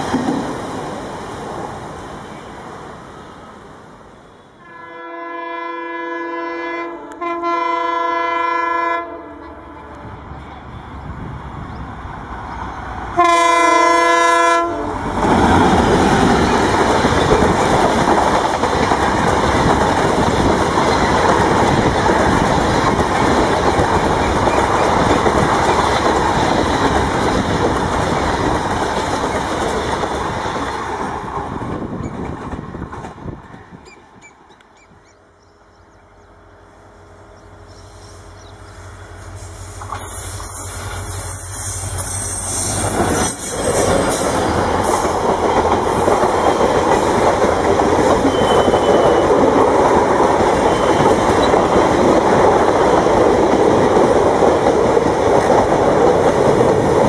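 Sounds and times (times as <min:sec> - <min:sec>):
train passing at speed: 0:00.0 - 0:57.0
diesel locomotive horn: 0:04.3 - 0:10.4, 0:13.1 - 0:15.2, 0:48.2 - 0:49.5
wheel-on-rail noise: 0:15.0 - 0:35.2, 0:39.6 - 0:57.0.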